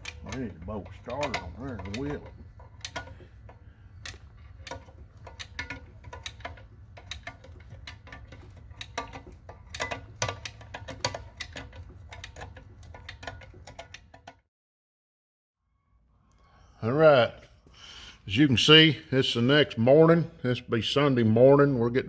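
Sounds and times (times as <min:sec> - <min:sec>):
hand tools clicking on metal: 0:00.0 - 0:14.4.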